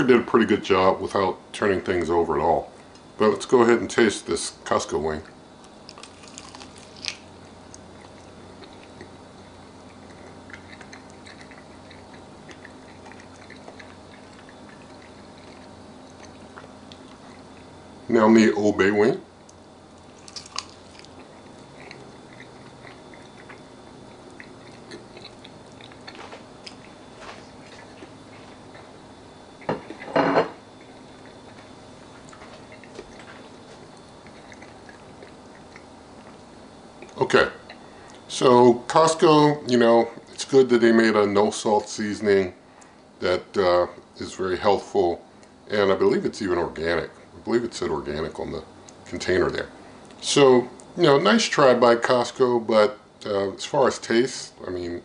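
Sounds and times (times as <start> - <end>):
person chewing with moist clicks: 5.2 - 17.8, 19.4 - 30.1, 30.8 - 38.3, 45.4 - 45.6, 48.8 - 50.2.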